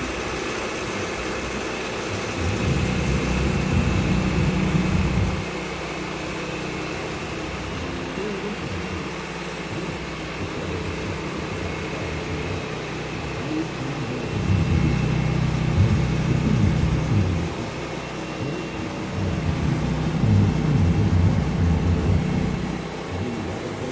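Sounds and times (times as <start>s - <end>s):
sawmill engine running: 0.0s - 23.9s.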